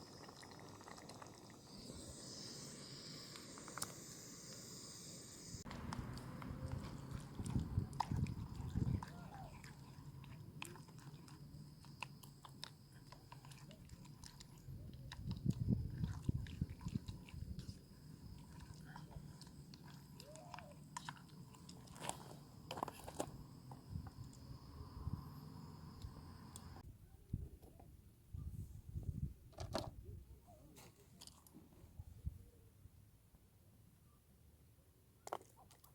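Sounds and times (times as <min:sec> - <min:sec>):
faint high whine: 0:00.0 - 0:26.8.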